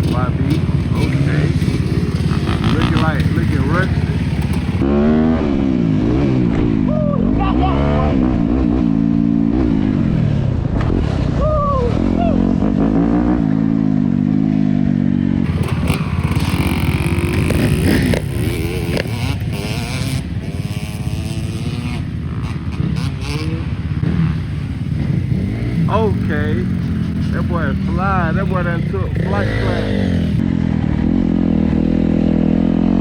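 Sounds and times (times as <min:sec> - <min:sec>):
clatter: 0:00.0 - 0:04.8, 0:15.5 - 0:24.2
dirt bike engine revving: 0:00.0 - 0:10.2, 0:12.3 - 0:33.0.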